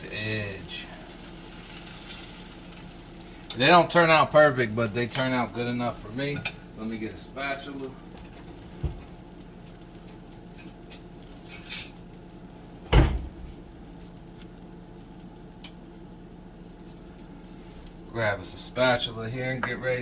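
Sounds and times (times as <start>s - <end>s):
low background hum: 0.0s - 20.0s
loud knock: 12.9s - 13.6s.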